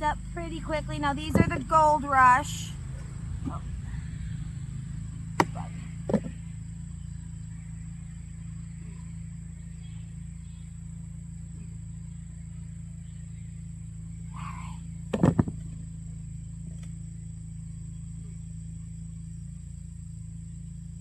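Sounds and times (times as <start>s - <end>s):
excavator diesel engine droning: 0.0s - 21.0s
sharp knocks: 5.4s - 6.4s.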